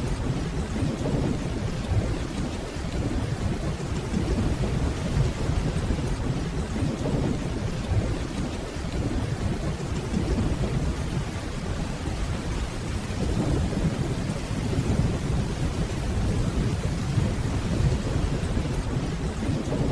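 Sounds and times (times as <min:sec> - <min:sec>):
distant rolling thunder: 0:00.0 - 0:19.9
steady rainfall: 0:00.0 - 0:19.9.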